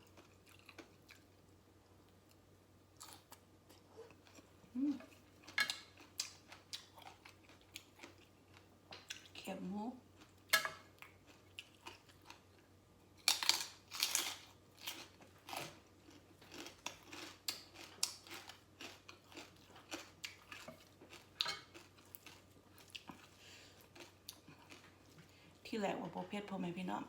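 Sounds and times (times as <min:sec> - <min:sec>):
crunching crispy pork rinds: 0:11.0 - 0:25.2.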